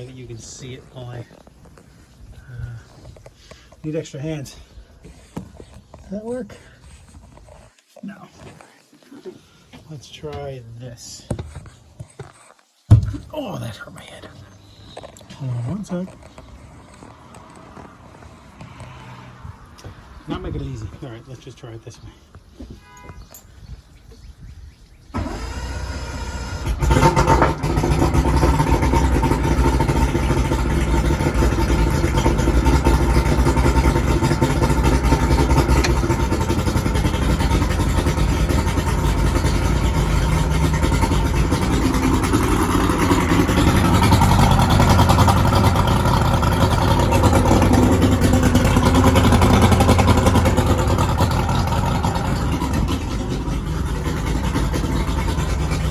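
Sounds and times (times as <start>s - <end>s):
boat engine running: 0.0s - 4.7s, 25.2s - 55.9s
boat engine cranking: 25.1s - 55.9s.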